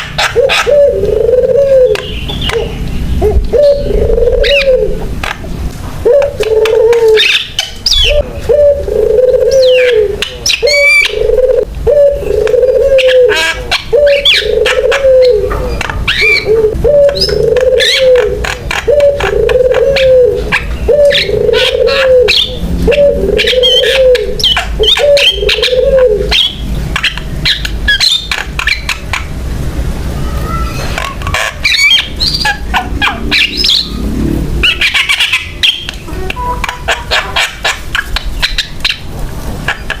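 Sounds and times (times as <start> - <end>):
low cooing note: 0.4 - 5.2, 6.0 - 7.2, 8.0 - 26.3.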